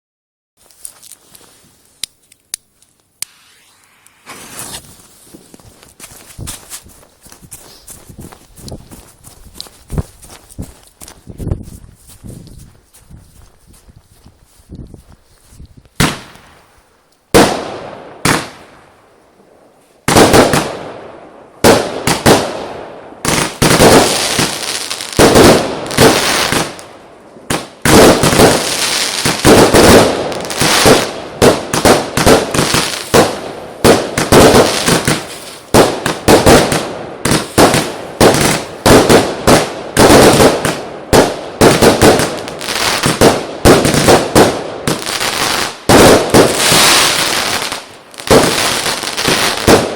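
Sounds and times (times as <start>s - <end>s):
firework bangs: 3.2s - 5.5s, 20.1s - 26.8s, 27.4s - 49.9s.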